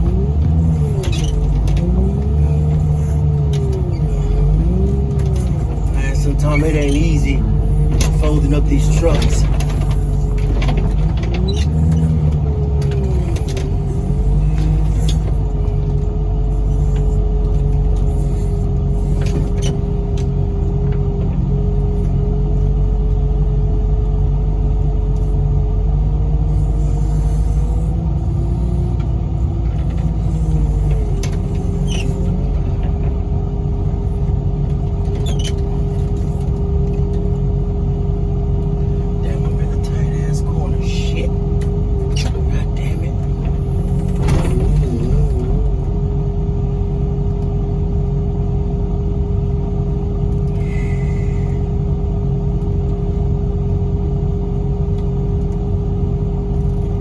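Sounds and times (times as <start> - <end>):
hydraulic whine: 0.0 - 20.3, 26.4 - 33.2, 38.8 - 46.0, 50.5 - 51.8
diesel engine running: 0.0 - 57.0.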